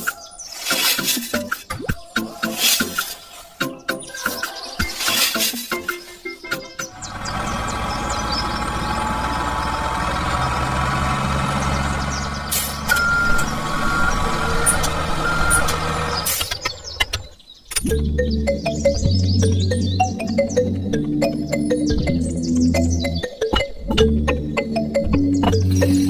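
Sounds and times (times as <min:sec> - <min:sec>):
heavy vehicle engine running: 0:06.8 - 0:17.4
reversing alarm beeping: 0:12.8 - 0:15.8.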